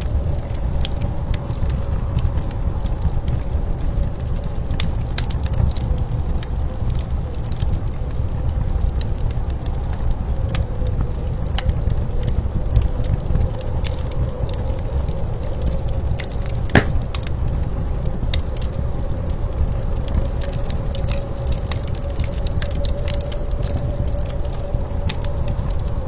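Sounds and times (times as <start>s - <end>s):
wood fire crackling: 16.8s - 17.3s.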